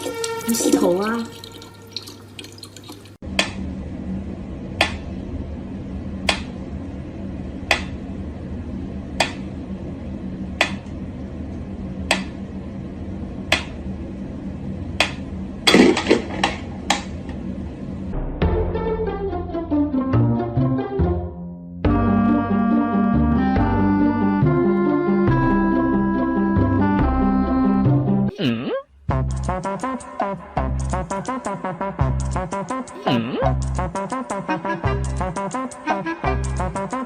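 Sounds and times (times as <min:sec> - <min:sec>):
music: 0:00.0 - 0:02.0, 0:18.1 - 0:28.4, 0:29.1 - 0:37.0
steady low hum: 0:03.2 - 0:19.7, 0:21.9 - 0:37.0.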